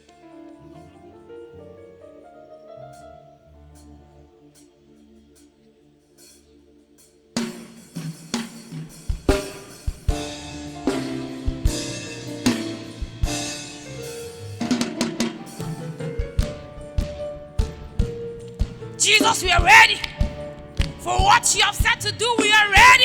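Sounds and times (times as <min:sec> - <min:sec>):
church band playing: 0:07.4 - 0:23.0
drum kit hits: 0:07.4 - 0:23.0
soft held chords: 0:09.9 - 0:23.0.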